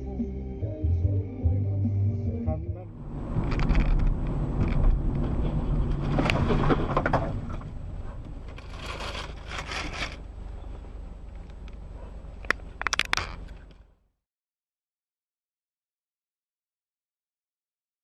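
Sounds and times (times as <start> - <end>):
road vehicle rumble: 0.0 - 14.1
scraping crunching strokes: 8.5 - 10.3.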